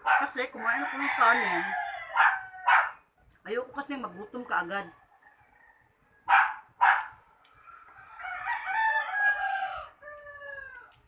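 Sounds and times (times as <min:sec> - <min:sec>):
rooster crowing: 0:00.5 - 0:03.0, 0:05.0 - 0:11.0.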